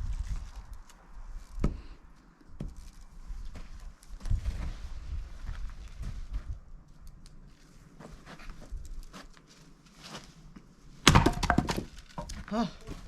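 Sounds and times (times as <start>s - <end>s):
axe striking a log: 11.0s - 12.0s.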